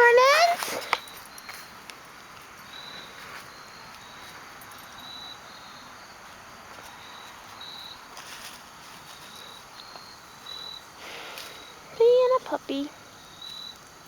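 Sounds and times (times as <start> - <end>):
crickets chirping: 0.0 - 14.0
steady background hiss: 0.0 - 14.0
scratchy rustle: 8.1 - 9.6.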